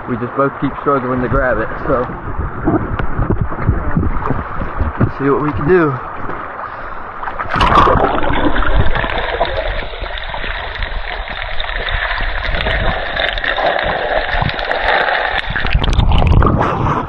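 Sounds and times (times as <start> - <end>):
rushing river water: 3.7 - 16.5
water splash: 4.1 - 17.0.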